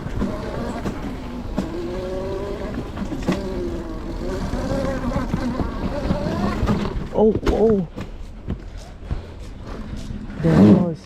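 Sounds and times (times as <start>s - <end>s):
electric motor whining: 0.0s - 7.2s.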